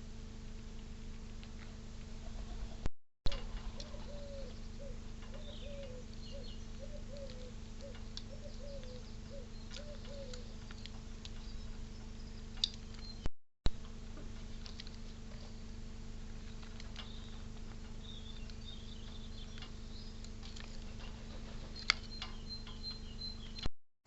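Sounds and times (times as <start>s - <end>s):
electrical hum: 0.0s - 23.7s
dove cooing: 2.2s - 10.8s
small birds chirping: 2.3s - 13.3s, 14.4s - 23.7s.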